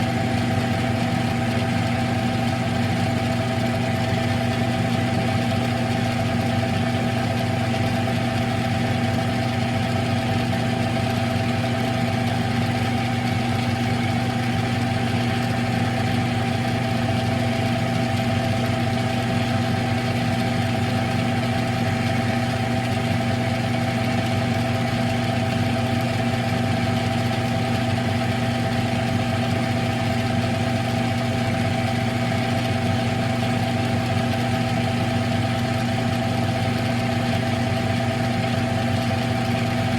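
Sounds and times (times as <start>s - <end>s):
lathe motor humming and whirring: 0.0s - 39.9s.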